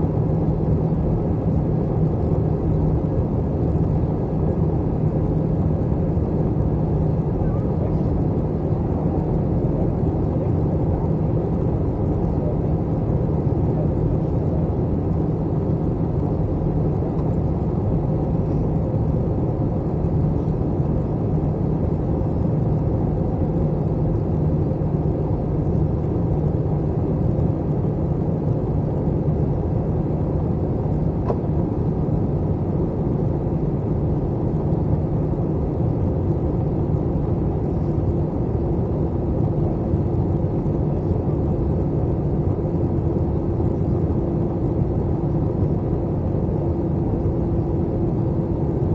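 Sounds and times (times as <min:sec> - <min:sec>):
airliner cabin drone: 0:00.0 - 0:48.9.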